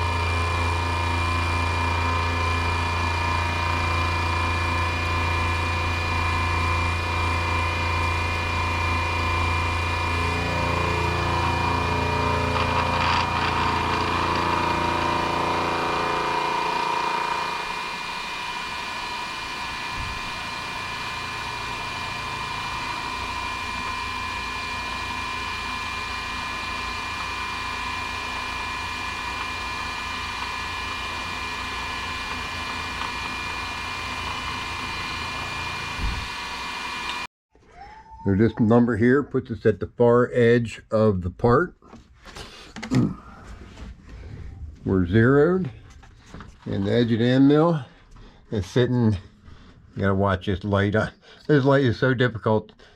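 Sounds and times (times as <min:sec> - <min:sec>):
milling machine motor humming: 0:00.0 - 0:37.3.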